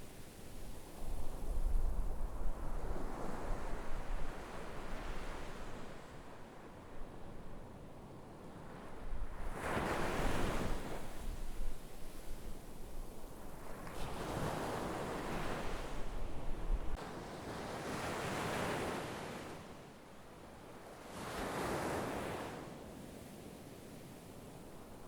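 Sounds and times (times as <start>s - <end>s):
wind rumble on microphone: 0.0s - 17.2s.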